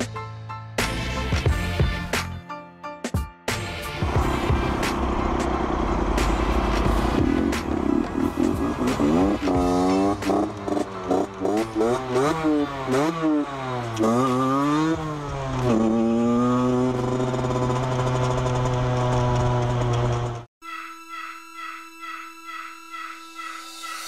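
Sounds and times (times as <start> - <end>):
motorcycle engine revving: 3.8 - 20.5.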